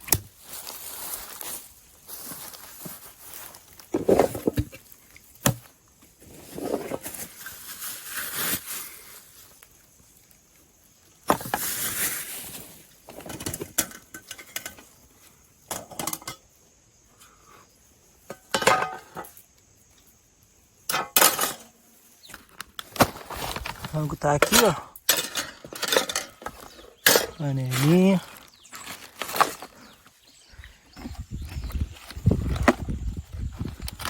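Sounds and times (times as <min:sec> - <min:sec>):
rustling: 0:00.4 - 0:05.1, 0:06.1 - 0:10.2, 0:11.3 - 0:13.8, 0:22.4 - 0:30.1
pots and utensils clinking: 0:15.7 - 0:16.4, 0:18.3 - 0:19.3, 0:20.9 - 0:21.7, 0:24.4 - 0:27.5.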